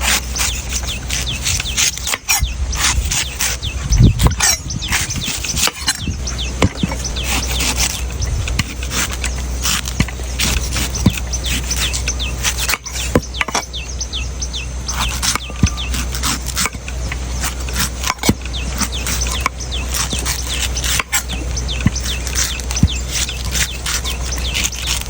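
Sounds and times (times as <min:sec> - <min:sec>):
birds chirping: 0:00.0 - 0:25.0
steady low hum: 0:00.0 - 0:25.0
knife chopping into coconut: 0:08.6 - 0:13.7, 0:17.4 - 0:25.0.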